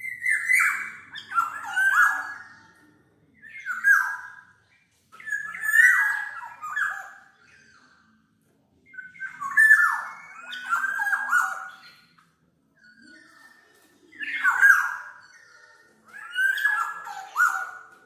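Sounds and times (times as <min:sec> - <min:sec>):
bird whistling song: 0:00.0 - 0:02.8, 0:03.4 - 0:04.5, 0:05.2 - 0:08.2, 0:08.9 - 0:12.2, 0:14.1 - 0:18.0.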